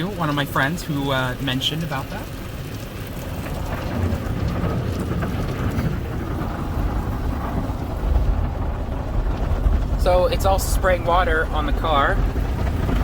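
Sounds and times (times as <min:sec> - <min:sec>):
water jets spraying on car: 0:00.0 - 0:13.0
low rumble: 0:02.1 - 0:13.0.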